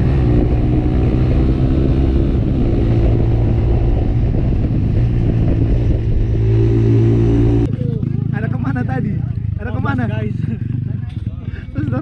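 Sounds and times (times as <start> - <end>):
wind noise on microphone: 0.0 - 7.7
motorcycle engine running: 0.0 - 12.0.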